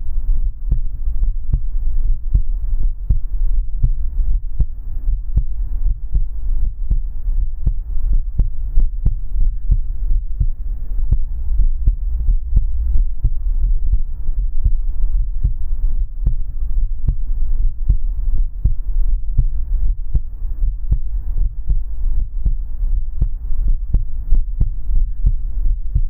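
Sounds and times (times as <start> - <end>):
faint hum: 0.0 - 26.0
heartbeat: 0.0 - 26.0
low rumble: 0.0 - 26.0.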